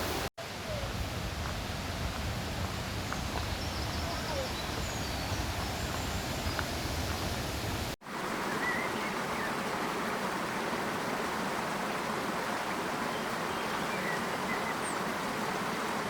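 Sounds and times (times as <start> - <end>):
mountain stream rushing: 0.0 - 16.0.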